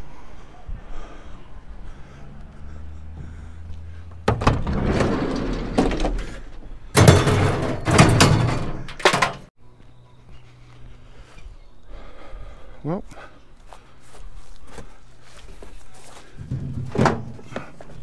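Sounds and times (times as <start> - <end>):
junk rustling and scraping: 4.0 - 9.5, 16.4 - 18.0
door shutting: 4.2 - 9.5.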